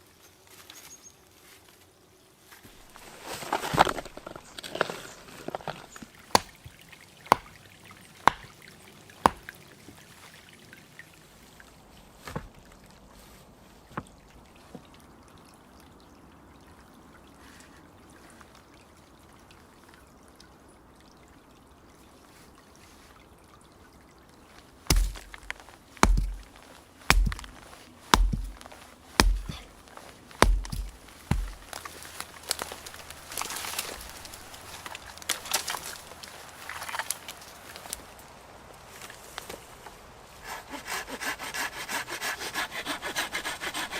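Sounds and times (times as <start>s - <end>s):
sharp knocks: 6.4s - 6.6s, 7.3s - 7.5s, 8.3s - 8.5s, 9.3s - 9.5s, 24.9s - 29.7s, 30.4s - 31.8s
heavy thuds: 24.9s - 29.8s, 30.4s - 31.8s.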